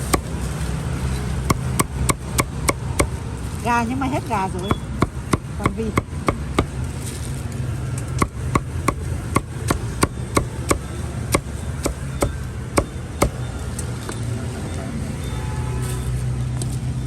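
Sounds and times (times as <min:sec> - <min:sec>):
low traffic hum: 0:00.0 - 0:17.0
cleaver chopping on board: 0:01.5 - 0:03.2, 0:04.7 - 0:06.8, 0:08.2 - 0:13.4.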